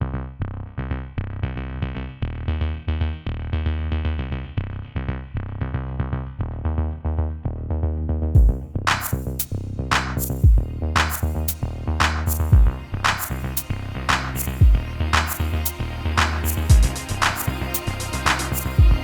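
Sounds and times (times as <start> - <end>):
electronic music with synthesizer: 10.2 - 19.0.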